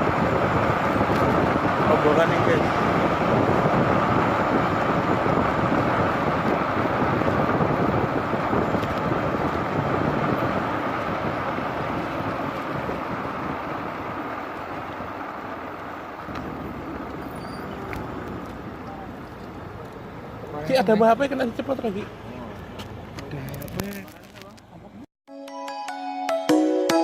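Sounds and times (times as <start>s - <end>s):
wind noise on microphone: 0.0s - 14.4s
vehicle travelling: 0.0s - 25.1s.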